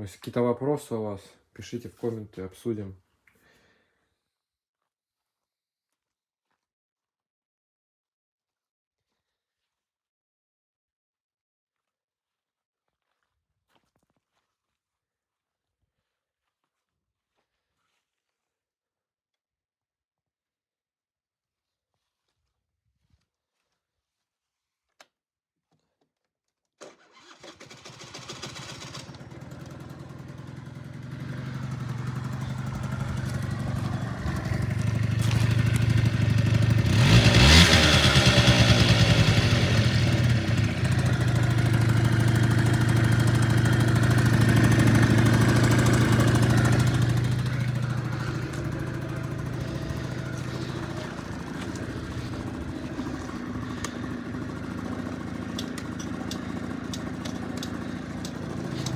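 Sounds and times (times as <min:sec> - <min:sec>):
scooter engine starting and revving: 0:26.8 - 0:58.9.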